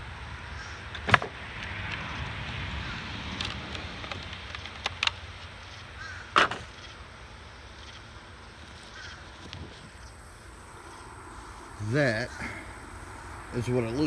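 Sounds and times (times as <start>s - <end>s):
sharp plastic clicks and snaps: 3.3s - 7.0s.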